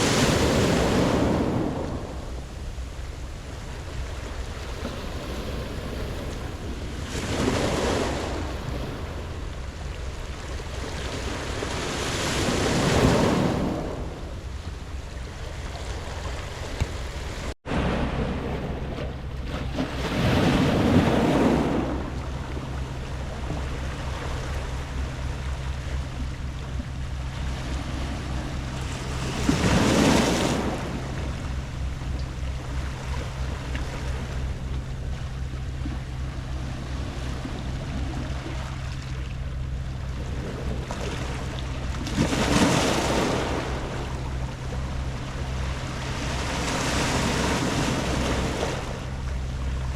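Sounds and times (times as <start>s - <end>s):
waves washing on pebble beach: 0.0s - 2.0s
low rumble: 0.0s - 49.9s
surf surges: 0.0s - 49.9s.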